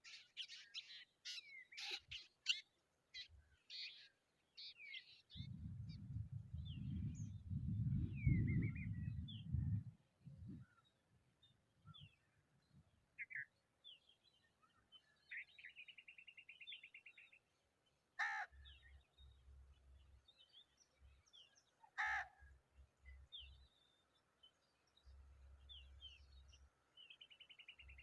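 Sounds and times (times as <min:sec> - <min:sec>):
harsh caw-like bird calls: 0:00.0 - 0:02.3, 0:18.2 - 0:18.8, 0:21.8 - 0:22.6.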